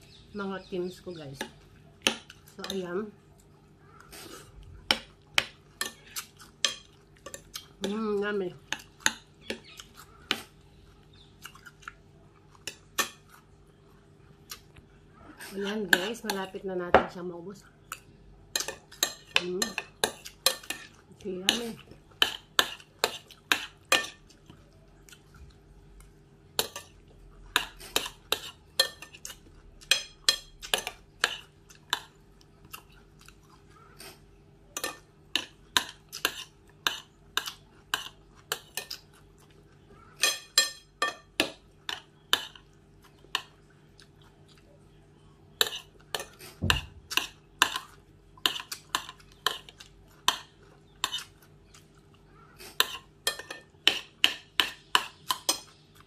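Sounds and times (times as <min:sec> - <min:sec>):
crunchy chewing of raw vegetables: 0:08.7 - 0:15.5, 0:20.0 - 0:40.4, 0:41.3 - 0:56.0
metal spoon clinking on glass bowl: 0:40.2 - 0:41.3.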